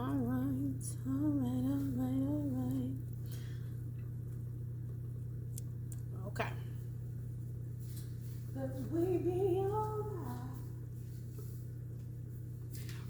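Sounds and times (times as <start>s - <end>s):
woman singing wordless melody: 0.0s - 3.1s, 8.5s - 10.9s
steady low hum: 0.0s - 13.0s.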